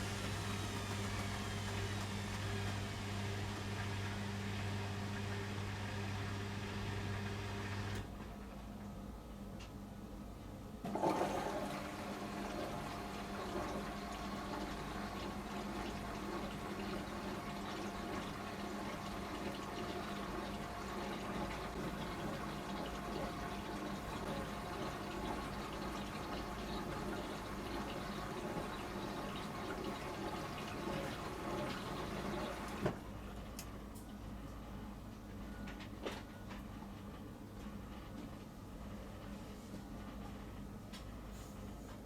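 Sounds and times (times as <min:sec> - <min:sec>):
washing machine filling with water: 0:00.0 - 0:08.2, 0:10.8 - 0:35.3.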